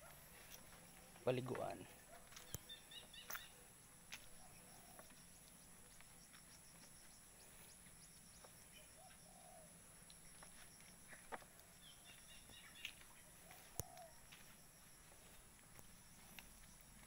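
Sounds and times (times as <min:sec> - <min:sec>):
faint bird chirps: 0:00.0 - 0:17.0
light ticks: 0:13.7 - 0:14.1.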